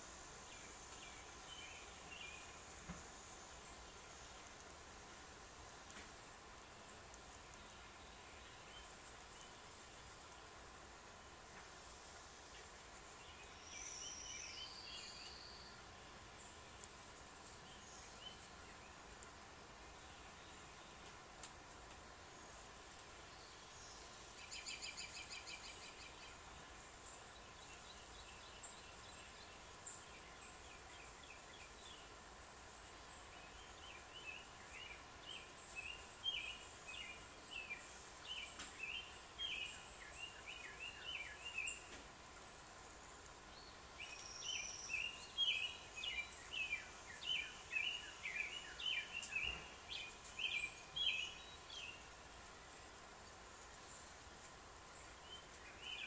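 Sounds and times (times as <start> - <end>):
small songbird chirping: 0.0 - 56.0
bird chirps: 43.6 - 52.1.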